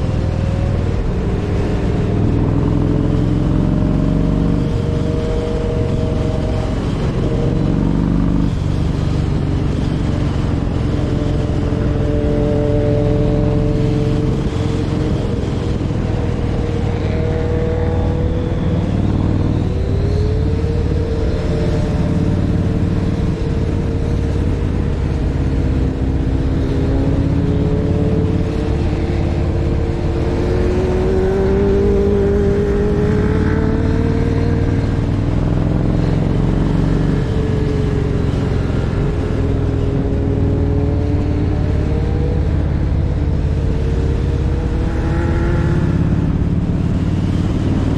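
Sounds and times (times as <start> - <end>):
motorcycle engines running: 0.0 - 47.9.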